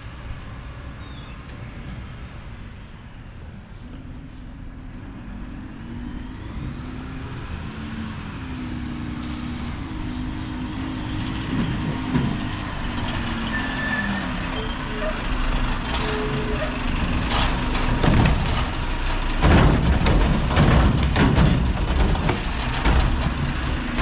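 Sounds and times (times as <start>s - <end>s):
truck diesel engine running: 8.2s - 24.0s.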